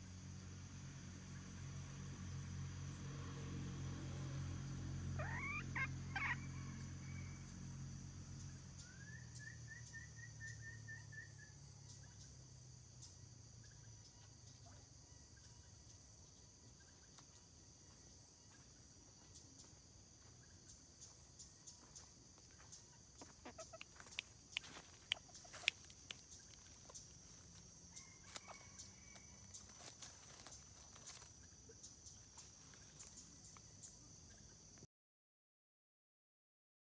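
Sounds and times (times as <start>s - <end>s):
insects droning: 0.0s - 34.9s
hen cackling calls: 5.1s - 7.4s, 23.2s - 30.6s.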